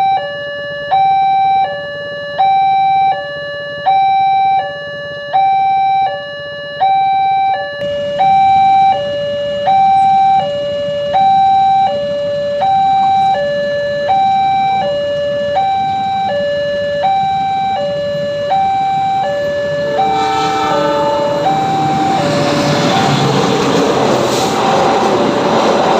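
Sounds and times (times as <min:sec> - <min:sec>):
level crossing two-tone alarm: 0:00.0 - 0:24.8
oncoming train noise: 0:07.8 - 0:25.9.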